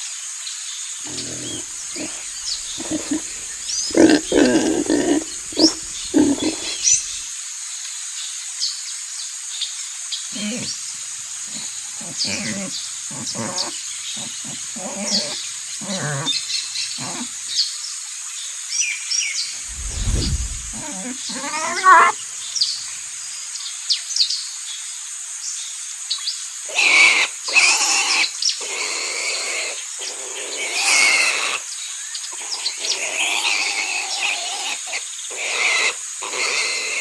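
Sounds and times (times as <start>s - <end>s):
birds chirping: 1.1s - 7.2s, 19.6s - 22.2s
rough animal calls: 1.1s - 7.2s, 11.5s - 17.3s, 19.6s - 22.2s.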